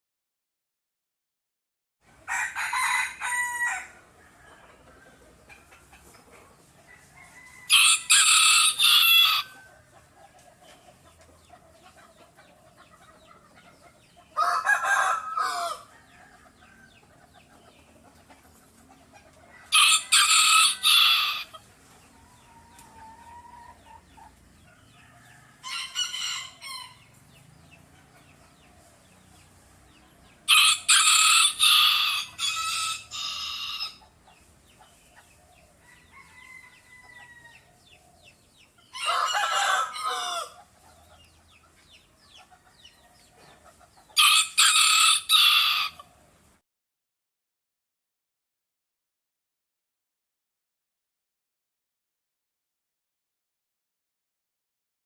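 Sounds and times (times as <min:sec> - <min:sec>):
rooster crowing: 0:02.2 - 0:04.8, 0:06.8 - 0:09.8, 0:14.4 - 0:17.0, 0:19.5 - 0:21.5, 0:24.9 - 0:27.1, 0:30.5 - 0:34.0, 0:35.8 - 0:37.8, 0:38.9 - 0:40.7, 0:44.2 - 0:46.0.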